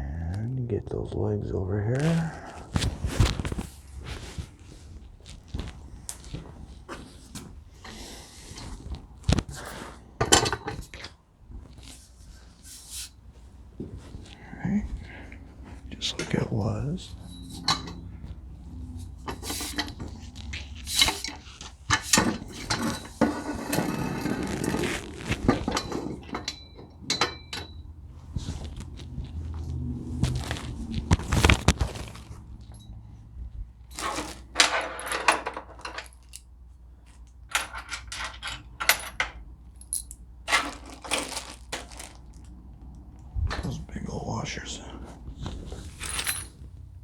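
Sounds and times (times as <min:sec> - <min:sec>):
scraping rattle: 0:17.0 - 0:29.7
metal hardware clinking: 0:17.1 - 0:18.2, 0:25.7 - 0:27.9, 0:37.5 - 0:41.5, 0:45.9 - 0:46.8.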